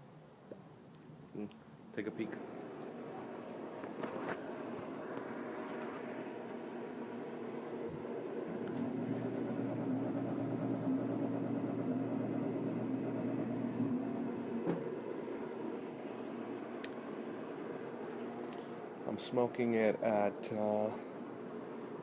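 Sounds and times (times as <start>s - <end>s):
grill fan humming: 1.9s - 22.0s
click: 16.8s - 17.0s.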